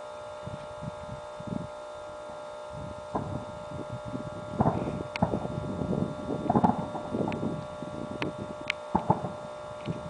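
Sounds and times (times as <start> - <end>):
faint steady hum: 0.0 - 10.0
wind on microphone: 0.4 - 10.0
fireworks sharp cracks: 3.1 - 3.4, 4.6 - 5.5, 6.4 - 7.4, 8.8 - 9.5
distant fireworks thumps: 3.1 - 3.5, 4.5 - 5.6, 6.4 - 7.4, 8.9 - 10.0.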